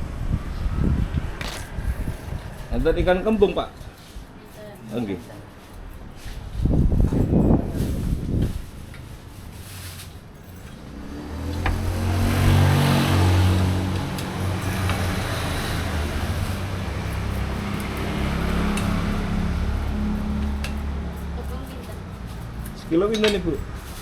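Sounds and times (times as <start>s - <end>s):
vehicle engine humming: 8.4s - 24.0s.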